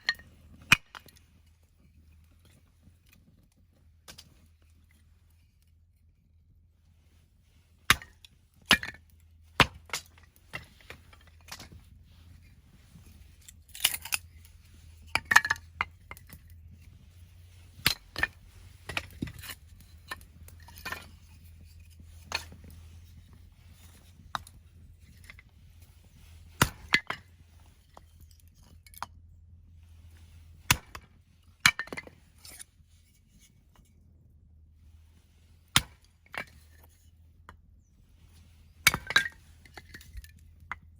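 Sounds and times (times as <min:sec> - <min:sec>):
axe splitting firewood: 0:07.9 - 0:09.0, 0:09.6 - 0:28.8, 0:30.4 - 0:32.6, 0:35.7 - 0:36.9, 0:38.8 - 0:40.3.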